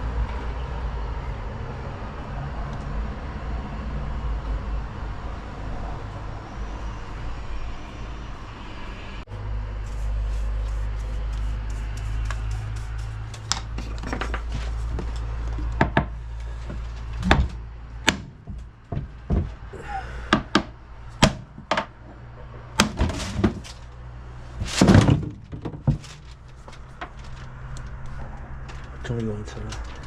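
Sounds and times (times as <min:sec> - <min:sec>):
hard objects knocking and clunking: 0:13.4 - 0:23.9, 0:24.6 - 0:27.2.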